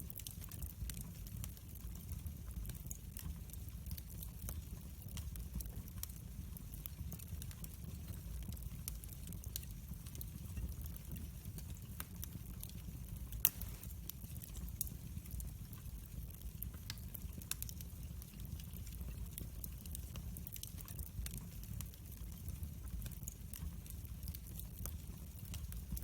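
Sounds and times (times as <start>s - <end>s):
low rumble of fire: 0.0s - 26.0s
wood fire crackling: 0.0s - 26.0s
sharp pop from fire: 13.4s - 14.0s.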